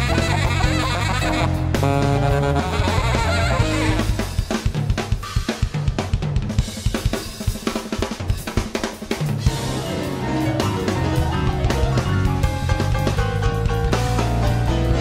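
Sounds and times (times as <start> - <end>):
jazz combo playing: 0.0 - 5.0, 9.3 - 15.0
fast drum kit break: 0.0 - 15.0.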